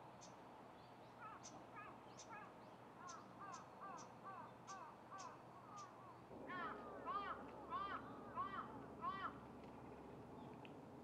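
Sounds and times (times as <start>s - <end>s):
faint bird calls: 1.1s - 9.4s.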